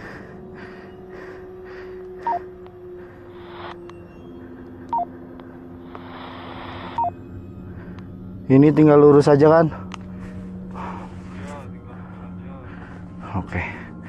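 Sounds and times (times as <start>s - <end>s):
steady hum: 0.0s - 14.0s
radio static hiss: 3.4s - 3.8s, 5.9s - 7.1s
two-tone radio beeps: 6.9s - 7.2s.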